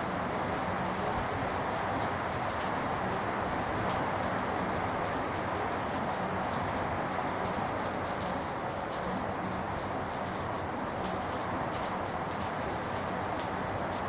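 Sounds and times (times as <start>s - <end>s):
rain drop ticks: 0.0s - 14.0s
steady rain hiss: 0.0s - 14.0s.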